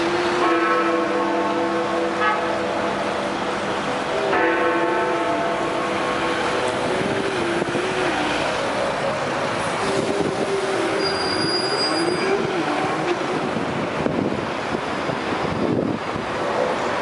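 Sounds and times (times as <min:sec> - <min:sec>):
city street traffic: 0:00.0 - 0:17.0
wavering squeal: 0:08.0 - 0:13.1.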